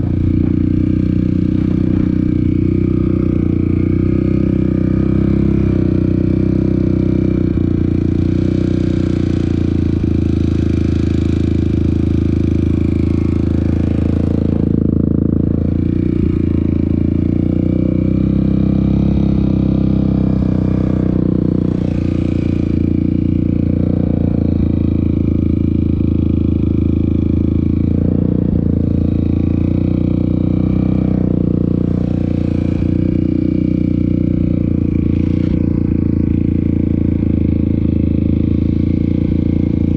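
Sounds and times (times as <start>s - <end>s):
rattle and clatter: 0.0s - 3.7s
off-road vehicle engine rumbling: 0.0s - 39.9s.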